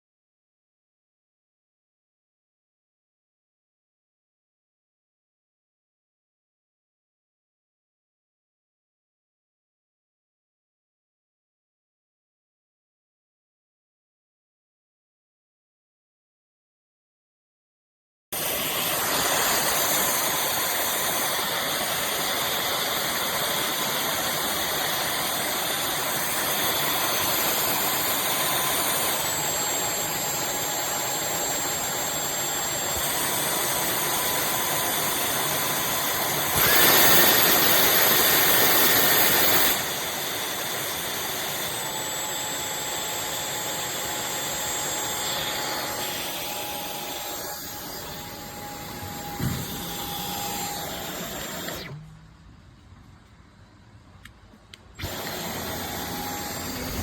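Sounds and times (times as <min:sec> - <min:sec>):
cordless vacuum running: 0:18.4 - 0:52.2, 0:54.9 - 0:57.0.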